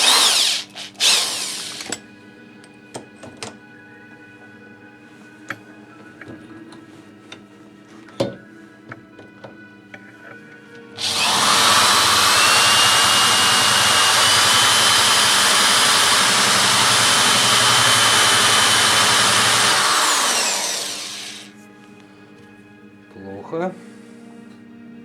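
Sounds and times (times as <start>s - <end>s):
electric drill whining: 0.0s - 2.0s, 11.0s - 21.5s.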